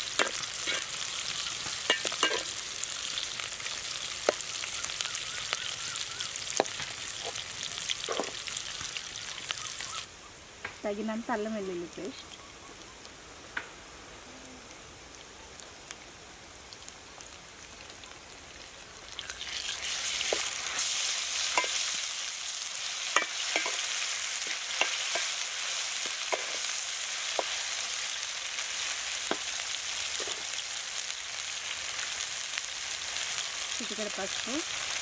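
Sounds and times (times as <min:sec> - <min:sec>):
onions sizzling in oil: 0:00.0 - 0:35.0.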